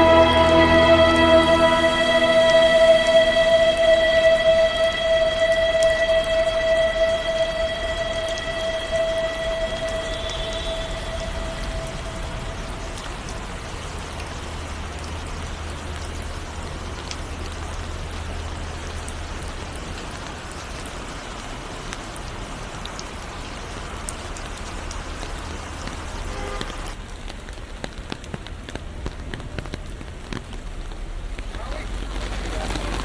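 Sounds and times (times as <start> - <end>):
faint held song note: 0.0 - 13.2
raindrop ticks: 0.0 - 33.0
steady rain falling: 0.0 - 33.0.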